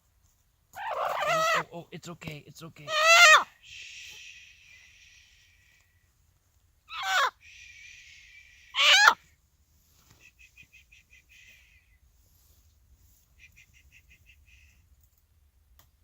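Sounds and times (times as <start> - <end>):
hen clucking: 0.8 - 1.7, 2.9 - 3.5, 6.9 - 7.3
hen squawking: 0.8 - 1.7, 2.8 - 3.6, 6.9 - 7.4, 8.7 - 9.2.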